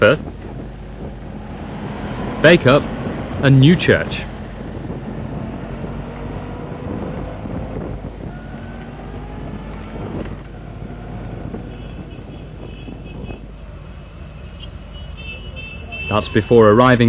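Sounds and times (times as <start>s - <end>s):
wind buffeting microphone: 0.0s - 14.4s.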